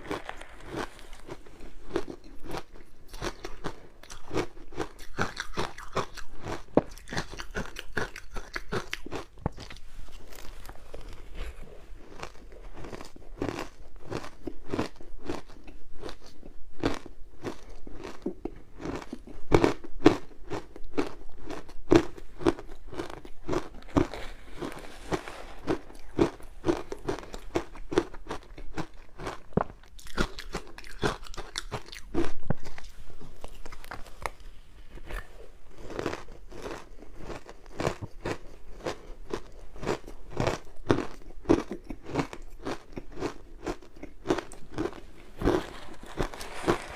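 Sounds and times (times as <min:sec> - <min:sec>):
crunching of ice being chewed: 0:00.0 - 0:46.9.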